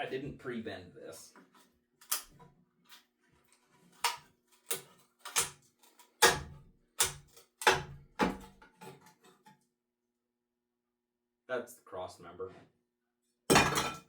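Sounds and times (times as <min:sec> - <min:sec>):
sharp metal knocks and clanks: 0:13.5 - 0:14.0.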